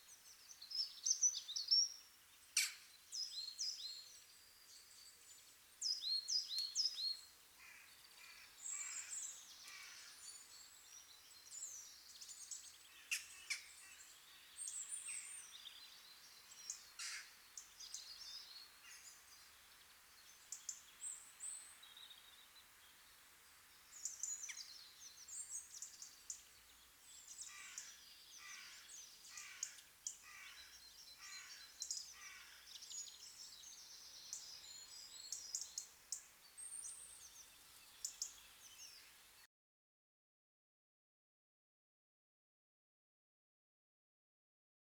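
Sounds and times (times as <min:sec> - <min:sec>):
faint steady hiss: 0:00.0 - 0:39.5
birds chirping: 0:23.9 - 0:39.2.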